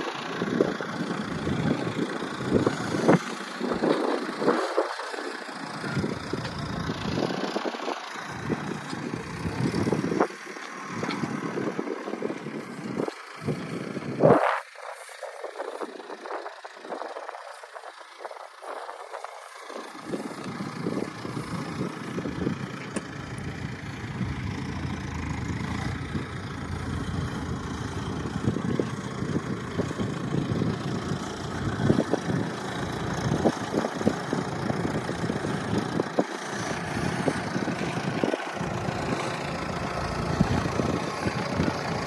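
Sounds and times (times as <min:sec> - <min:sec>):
vehicle engine idling: 0:00.0 - 0:42.0.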